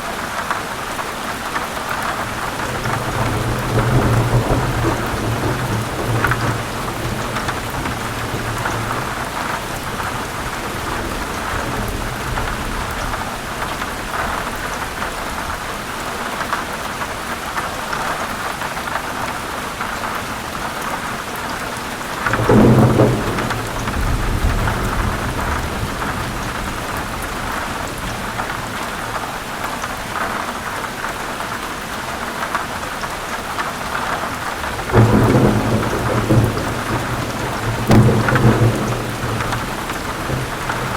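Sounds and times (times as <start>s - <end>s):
heavy rain on leaves: 0.0s - 40.9s
thunder rumbling: 2.3s - 15.6s, 22.1s - 29.2s, 34.5s - 40.9s.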